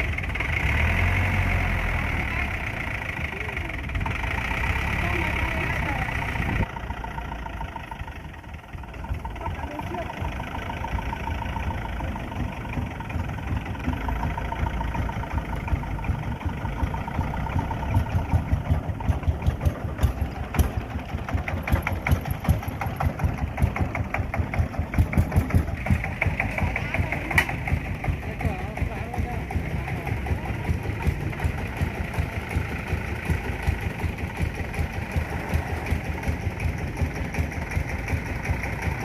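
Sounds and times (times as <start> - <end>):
vehicle engine idling: 0.0 - 39.0
fast regular engine knock: 8.5 - 39.0.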